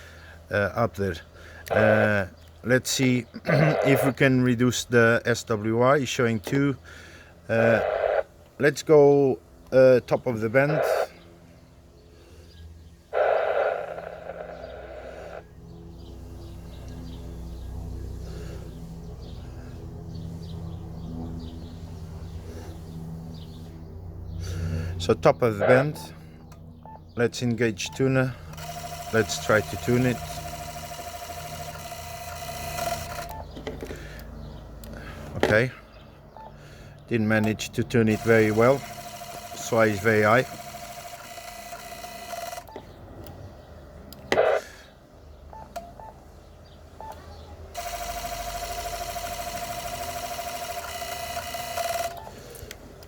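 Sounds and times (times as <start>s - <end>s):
small birds chirping: 0.0s - 7.8s, 9.4s - 53.0s
burst of radio noise: 3.5s - 4.2s, 7.5s - 8.3s, 10.6s - 11.2s, 13.1s - 15.4s, 25.6s - 26.1s, 44.3s - 44.8s
radio steady tone: 3.5s - 4.2s, 7.5s - 8.3s, 10.5s - 11.2s, 13.1s - 15.5s, 25.5s - 26.2s, 44.3s - 44.8s.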